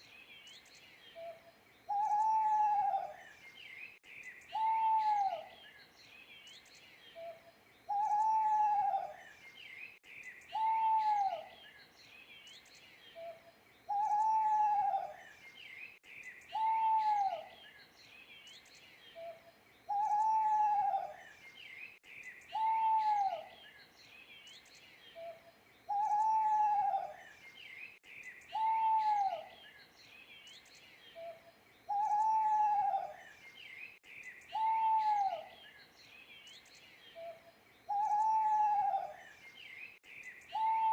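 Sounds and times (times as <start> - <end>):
small birds chirping: 0.0 - 40.9
owl hooting: 1.9 - 3.2, 4.5 - 5.5, 7.9 - 9.2, 10.5 - 11.5, 13.2 - 15.2, 16.5 - 17.5, 19.2 - 21.2, 22.5 - 23.5, 25.2 - 27.2, 28.5 - 29.5, 31.2 - 33.2, 34.5 - 35.6, 37.2 - 39.2, 40.5 - 40.9.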